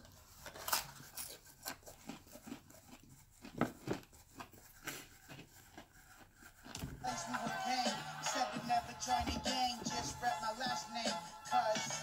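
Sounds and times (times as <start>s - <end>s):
person chewing crunchy food: 0.0s - 7.8s.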